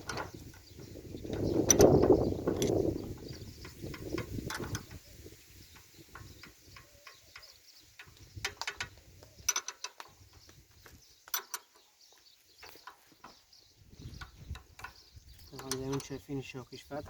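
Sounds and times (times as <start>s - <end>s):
spanners clicking on metal: 1.3s - 2.8s, 3.6s - 5.0s, 5.7s - 10.2s, 11.2s - 11.8s, 14.5s - 16.3s.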